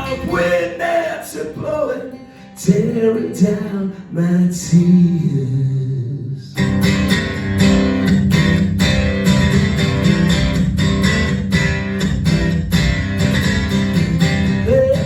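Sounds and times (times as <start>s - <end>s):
person singing: 0.0s - 6.6s, 14.6s - 15.0s
strummed acoustic guitar: 0.0s - 15.0s.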